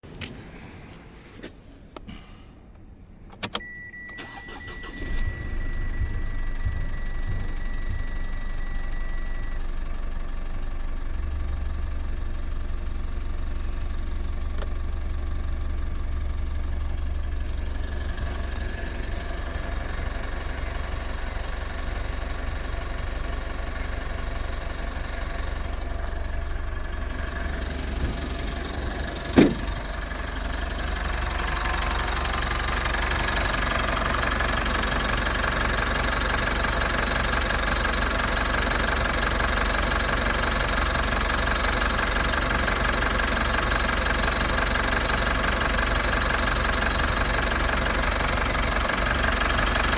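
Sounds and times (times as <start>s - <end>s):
diesel engine starting and idling: 3.4s - 49.9s
steady beep tone: 3.6s - 9.6s.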